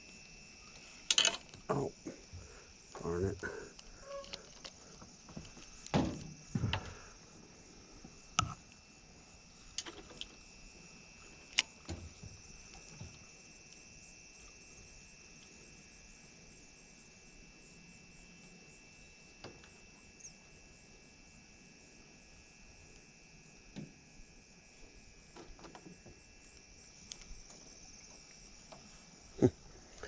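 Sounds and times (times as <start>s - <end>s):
insects buzzing: 0.0s - 30.0s.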